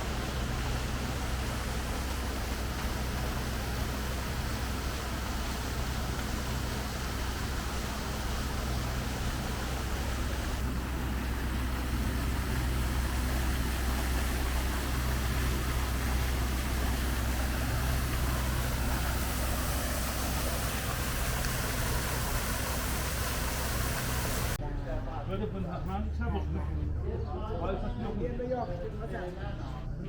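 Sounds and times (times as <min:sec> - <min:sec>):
car engine rumble: 0:00.0 - 0:24.6.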